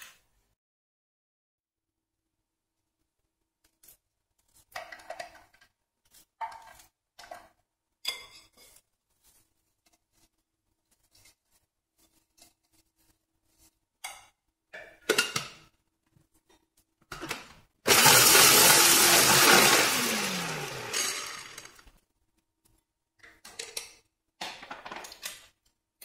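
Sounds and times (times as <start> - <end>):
electric chopper motor running: 17.9 - 21.8.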